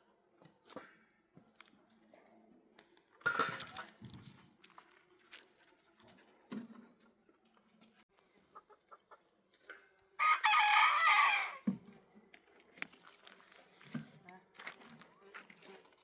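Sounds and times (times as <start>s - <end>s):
rooster crowing: 10.2s - 11.6s.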